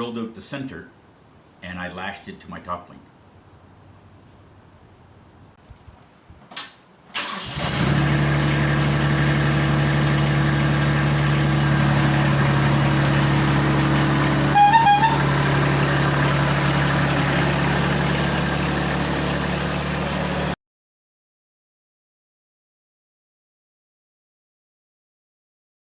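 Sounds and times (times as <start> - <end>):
tractor diesel engine running: 7.2 - 20.6
horn short beeps: 14.5 - 15.4.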